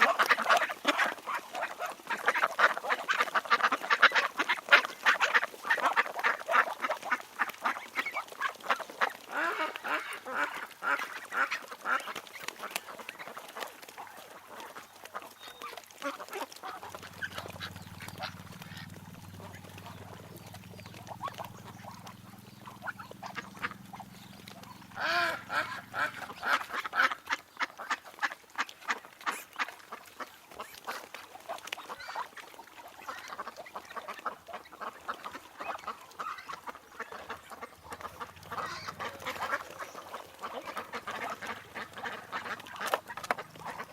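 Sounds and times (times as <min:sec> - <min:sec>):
ducks quacking: 0:00.0 - 0:43.9
steady low hum: 0:16.9 - 0:26.7.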